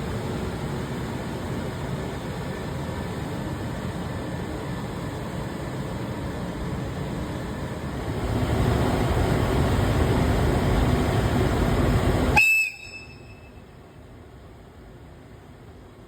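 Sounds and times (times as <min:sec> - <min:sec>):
freight train rumbling past: 0:00.0 - 0:16.0
brief high tone: 0:12.6 - 0:13.7.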